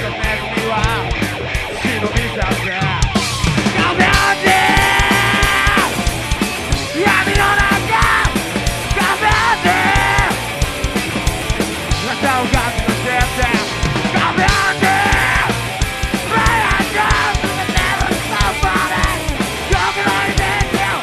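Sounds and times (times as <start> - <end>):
distorted guitar: 0.0 - 21.0
drums: 0.0 - 21.0
person singing or yelling: 3.8 - 6.0, 6.8 - 10.4, 12.0 - 21.0.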